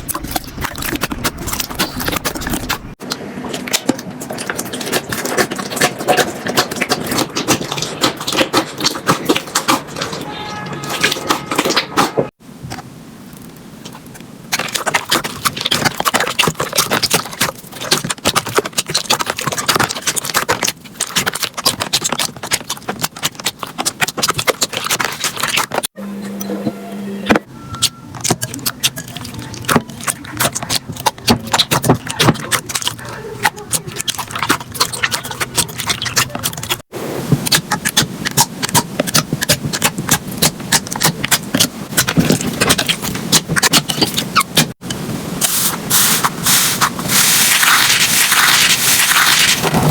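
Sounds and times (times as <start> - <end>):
slime crackling and popping: 13.4 - 25.9, 27.8 - 44.8, 45.4 - 49.9.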